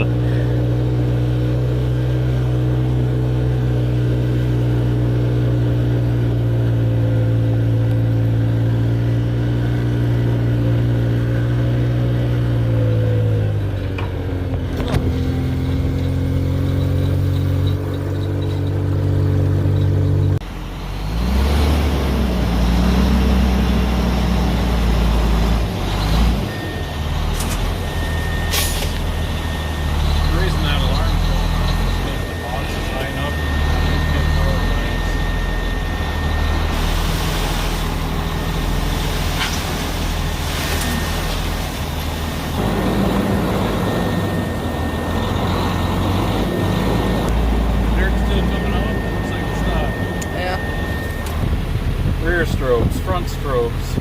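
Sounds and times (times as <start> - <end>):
dump truck diesel engine revving: 0.0 - 54.0
steady high-pitched tone: 26.5 - 41.8, 42.4 - 53.6.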